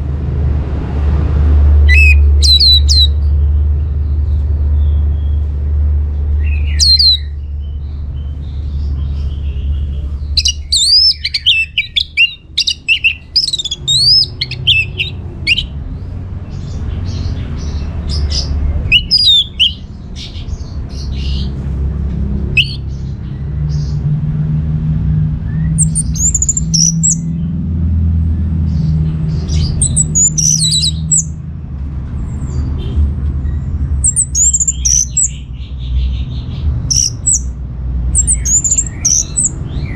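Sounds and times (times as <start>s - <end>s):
thrush singing: 1.8s - 3.2s, 6.4s - 7.3s, 9.4s - 15.8s, 17.6s - 21.6s, 22.4s - 23.2s, 25.6s - 27.4s, 29.4s - 31.4s, 34.0s - 36.2s, 36.8s - 39.9s.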